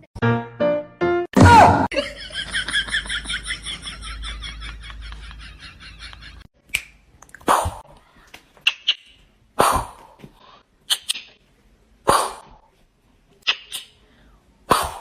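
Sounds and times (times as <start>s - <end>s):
dog making sharp noisy bursts: 7.4s - 7.8s, 9.6s - 10.1s, 12.0s - 12.6s, 14.7s - 15.0s.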